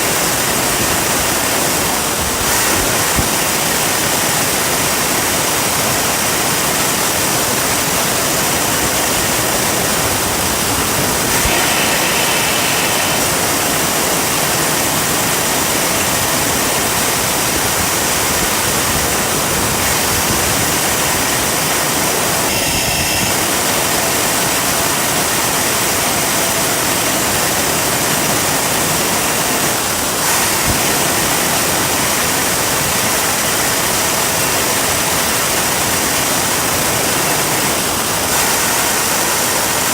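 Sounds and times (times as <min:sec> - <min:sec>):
jet engine roaring: 0:08.5 - 0:25.4
high whistling tones: 0:11.2 - 0:15.2.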